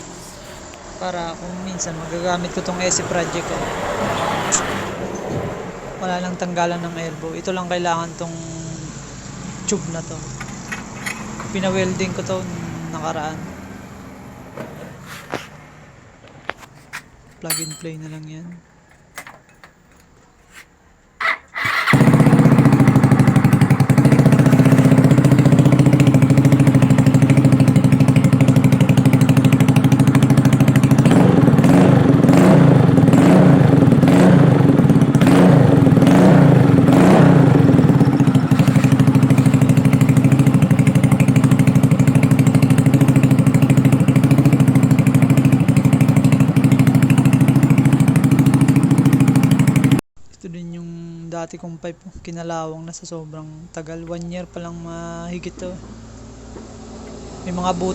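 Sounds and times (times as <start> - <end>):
scooter engine idling: 0.0 - 4.2, 21.2 - 50.0
scooter engine revving: 0.0 - 16.9, 21.2 - 50.0.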